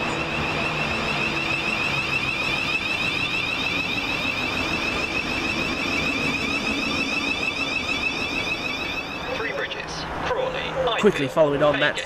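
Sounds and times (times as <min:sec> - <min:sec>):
low hum: 0:00.0 - 0:09.6
pulsing high-pitched tone: 0:00.0 - 0:09.9.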